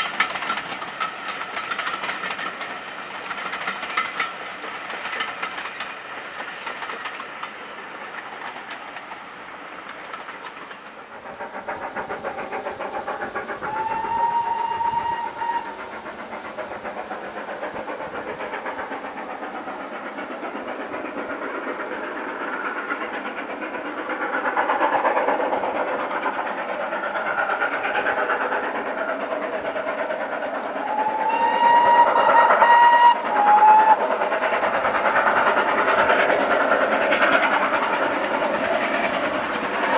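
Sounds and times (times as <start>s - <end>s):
steam locomotive exhaust: 0.0s - 39.9s
steam whistle: 13.7s - 15.8s, 30.8s - 34.0s.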